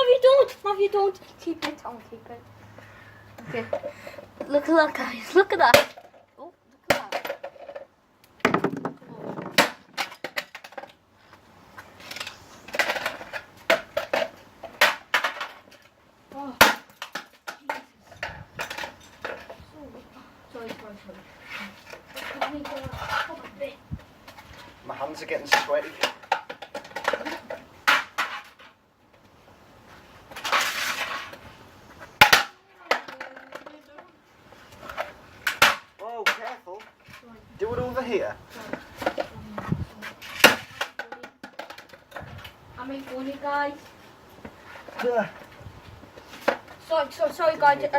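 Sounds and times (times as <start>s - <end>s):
vacuum cleaner being smashed: 12.1s - 15.7s, 32.2s - 33.7s, 35.4s - 36.6s.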